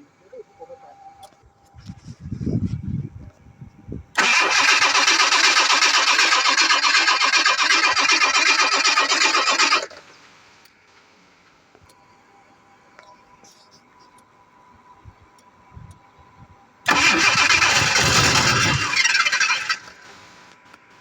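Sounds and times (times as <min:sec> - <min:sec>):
starter motor cranking engine: 0:04.2 - 0:10.0, 0:16.9 - 0:20.1.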